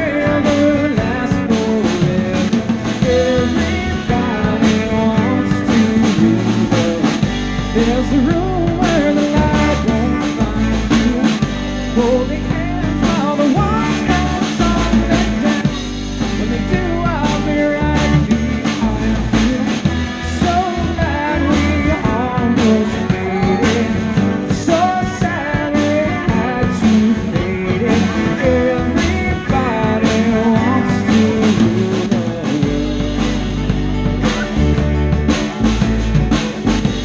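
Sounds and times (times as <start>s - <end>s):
bass: 0.0s - 37.0s
guitar: 0.0s - 37.0s
lead singer: 0.0s - 37.0s
steady drum beat: 0.0s - 37.0s.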